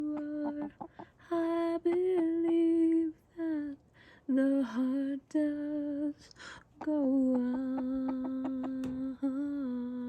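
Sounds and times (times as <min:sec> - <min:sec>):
woman humming: 0:00.0 - 0:00.9, 0:06.8 - 0:10.0.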